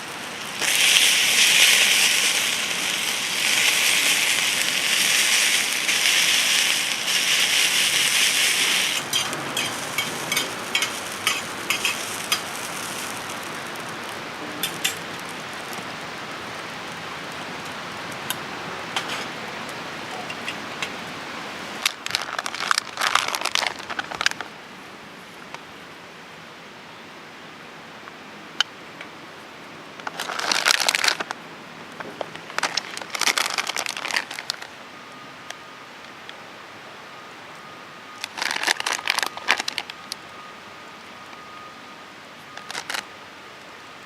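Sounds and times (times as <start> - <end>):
crinkling rustle: 0.0 - 16.3, 21.7 - 24.6, 30.0 - 34.8, 38.2 - 41.5, 42.4 - 43.8
food sizzling on a hot pan: 0.0 - 19.4.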